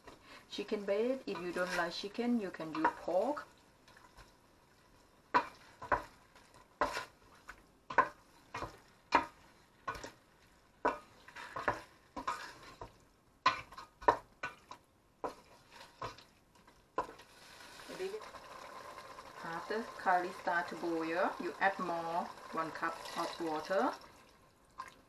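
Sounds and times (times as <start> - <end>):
frying sizzle: 0.0 - 25.0
spoon scraping a pot: 10.9 - 12.9.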